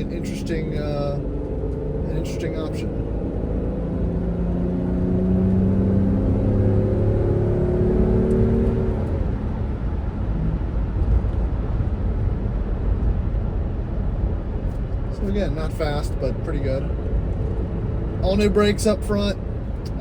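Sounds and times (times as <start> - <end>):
car engine accelerating: 0.0 - 20.0
road and tyre noise: 0.0 - 20.0.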